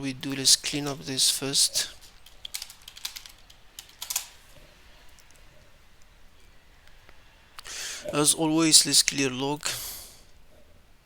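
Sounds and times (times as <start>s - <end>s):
computer keyboard keystrokes: 2.0s - 4.3s.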